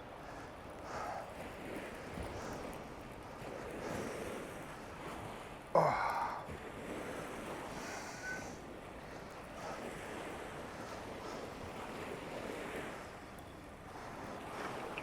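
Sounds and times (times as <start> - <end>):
wind: 0.0 - 15.0
person straining exhale: 5.8 - 6.4.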